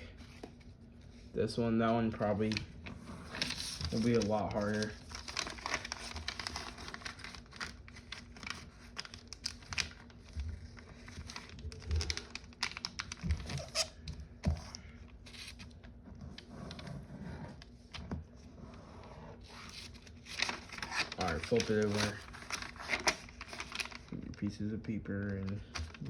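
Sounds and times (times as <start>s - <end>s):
foil paper crinkling: 2.0s - 14.1s, 19.4s - 24.6s, 25.2s - 26.0s.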